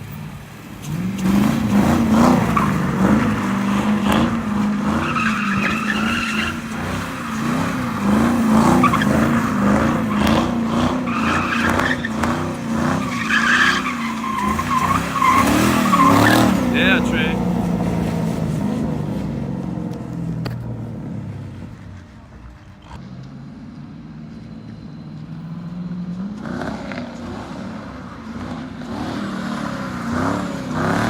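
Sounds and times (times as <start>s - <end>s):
tyres squealing and skidding: 0.0s - 19.6s
car engine revving high: 1.0s - 19.9s.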